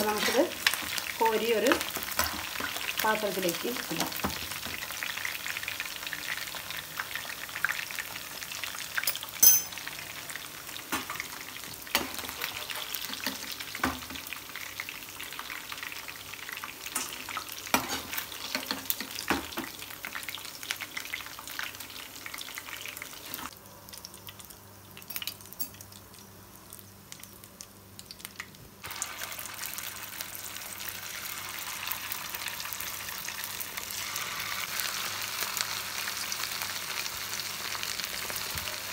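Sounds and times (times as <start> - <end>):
chicken deep-frying sizzle: 0.0 - 38.9
metal spoon clinking in pan: 9.0 - 9.8.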